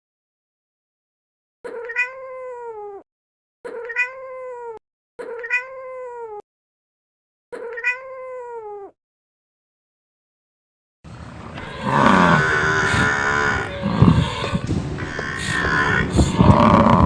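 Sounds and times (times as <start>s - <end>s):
cat meowing: 1.7s - 3.0s, 3.7s - 6.4s, 7.6s - 8.9s, 11.6s - 17.0s.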